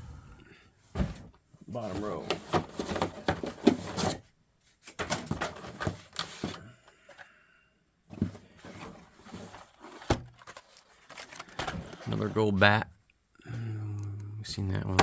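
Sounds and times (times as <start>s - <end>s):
plastic and cardboard packages rustling: 0.8s - 7.2s, 8.1s - 12.8s.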